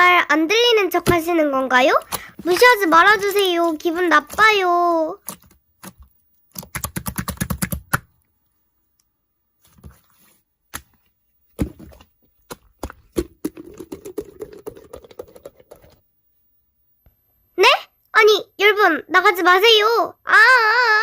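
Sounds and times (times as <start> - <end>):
keyboard typing: 1.9 - 8.2, 12.5 - 16.0.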